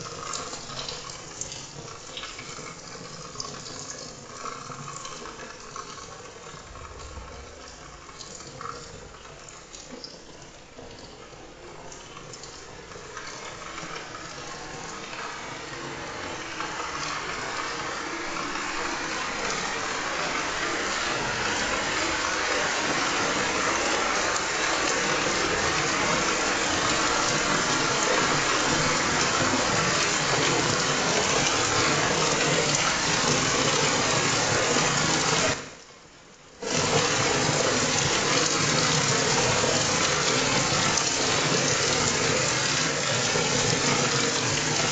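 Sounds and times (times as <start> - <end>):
heavy rain: 6.3 - 9.2, 13.4 - 35.7, 36.6 - 44.9.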